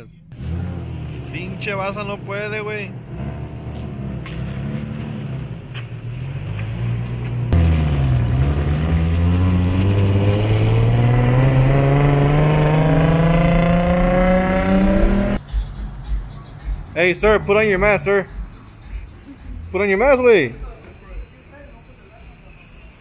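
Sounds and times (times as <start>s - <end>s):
car engine accelerating hard: 6.2s - 15.4s.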